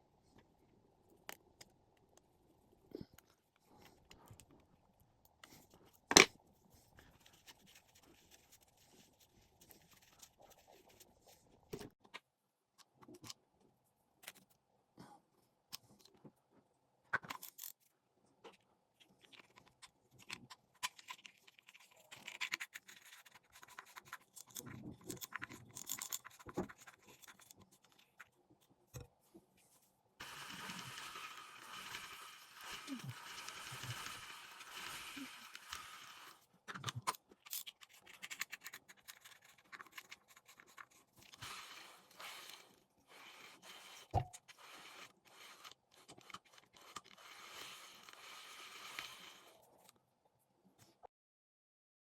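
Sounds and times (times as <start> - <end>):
reel parts clicking and scraping: 19.2 - 28.3, 30.2 - 49.9.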